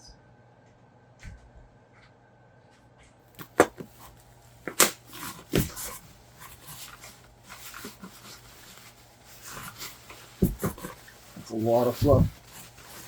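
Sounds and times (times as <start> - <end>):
packing rustling: 3.4 - 13.0
package knocks and clatters: 10.4 - 11.0.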